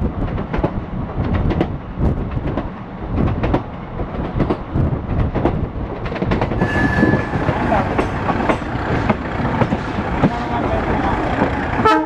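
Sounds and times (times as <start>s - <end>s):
train low rumble: 0.0s - 12.0s
train wheels clacking over joints: 2.4s - 12.0s.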